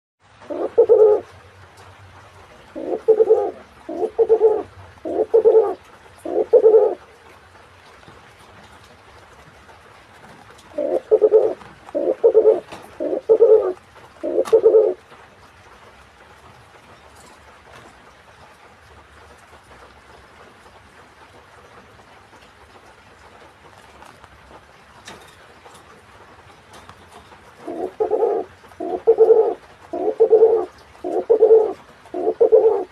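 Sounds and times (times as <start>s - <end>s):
pigeon cooing: 0.4s - 1.3s, 2.7s - 7.0s, 10.7s - 15.0s, 27.6s - 32.9s.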